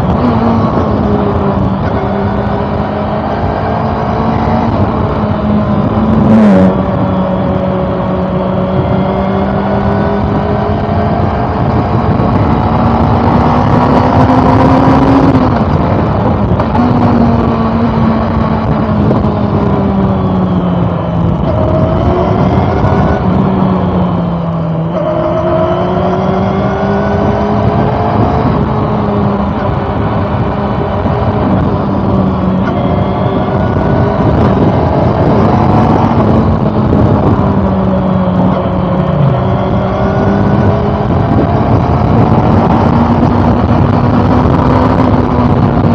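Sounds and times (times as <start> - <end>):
motorcycle engine running: 0.0 - 45.9
wind rush: 0.0 - 45.9.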